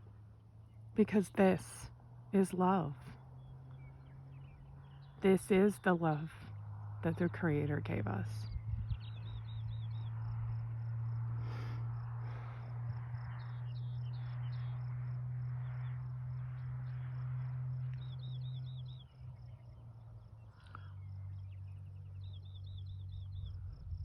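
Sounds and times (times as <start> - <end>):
steady low hum: 0.0 - 24.0
insects chirping: 9.0 - 24.0.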